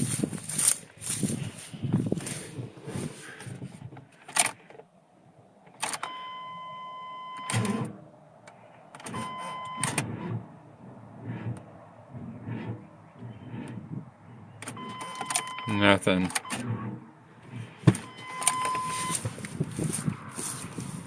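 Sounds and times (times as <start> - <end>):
long electronic beeps: 18.0 - 19.2.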